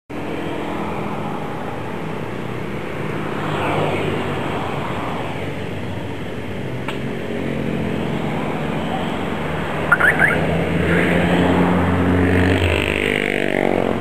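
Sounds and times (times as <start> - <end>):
engine noise: 0.3 - 14.0
motor vehicle passing: 7.1 - 14.0.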